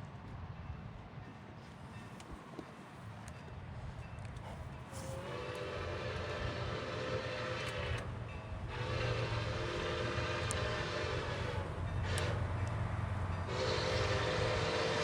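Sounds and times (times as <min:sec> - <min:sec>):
train rumbling: 0:00.0 - 0:15.0
locomotive air horn blasts: 0:04.9 - 0:12.7, 0:13.5 - 0:15.0.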